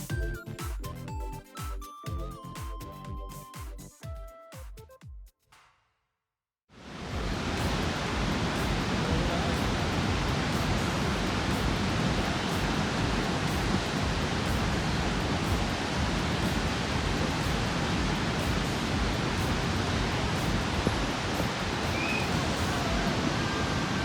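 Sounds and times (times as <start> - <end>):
waterfall roaring: 6.8 - 24.0.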